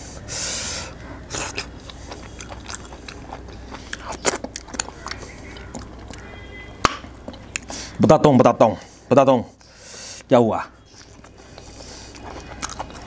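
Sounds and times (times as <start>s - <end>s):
person chewing with wet mouth clicks: 1.3s - 6.2s, 10.9s - 13.0s.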